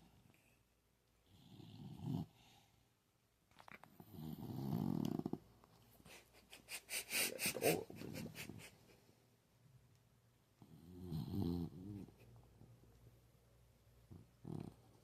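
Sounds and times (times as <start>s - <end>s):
puppy snoring: 1.2s - 2.6s, 4.0s - 5.4s, 10.6s - 12.1s, 14.1s - 15.0s.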